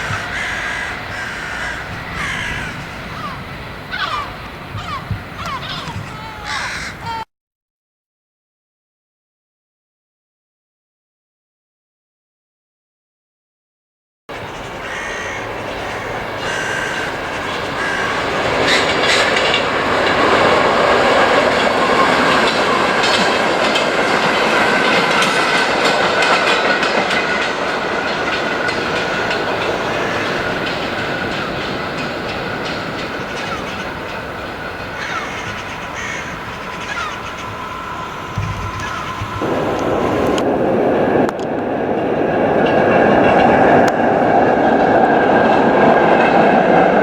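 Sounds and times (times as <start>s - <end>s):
train wheels clicking over rails: 0.0s - 6.1s, 14.3s - 47.0s
high whine: 14.3s - 45.6s.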